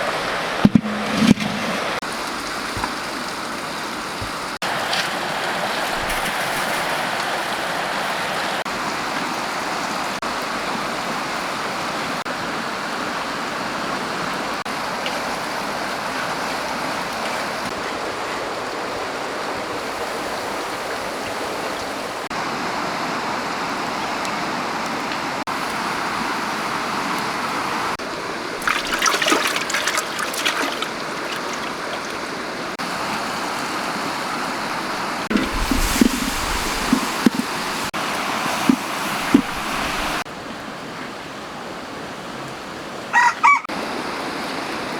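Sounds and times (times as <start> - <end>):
flowing stream rushing: 0.0 - 44.9
sharp splashing or knocking: 0.6 - 3.3, 28.6 - 32.4, 35.3 - 40.3.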